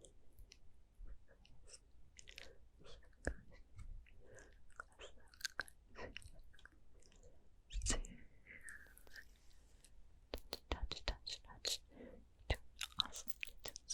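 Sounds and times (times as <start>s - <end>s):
wet mouth clicks and smacks: 12.5s - 13.9s.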